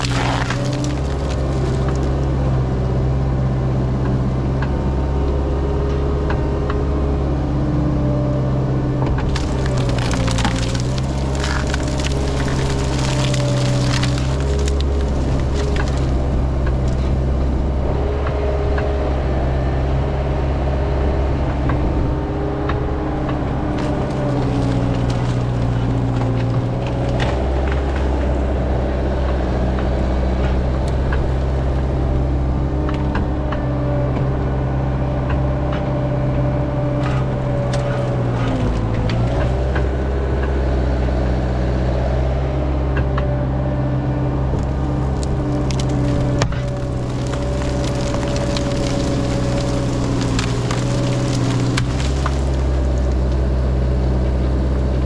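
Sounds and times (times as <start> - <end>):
excavator diesel engine running: 0.0 - 55.0
sharp clicks and cracks: 9.2 - 17.0.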